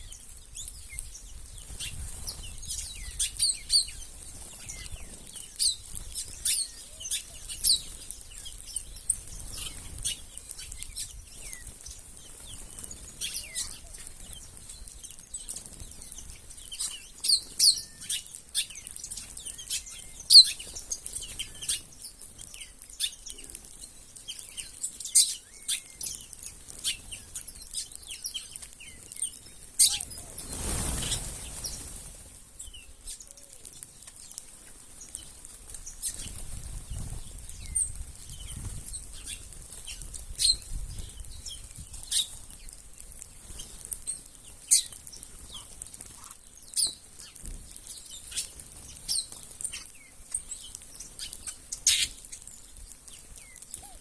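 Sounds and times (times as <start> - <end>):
small birds chirping: 0.0 - 54.0
wing flaps: 30.0 - 32.2.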